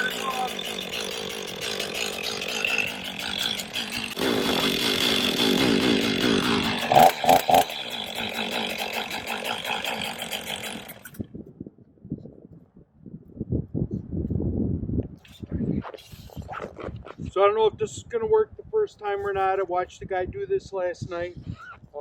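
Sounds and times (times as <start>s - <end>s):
chainsaw running: 0.0s - 11.3s.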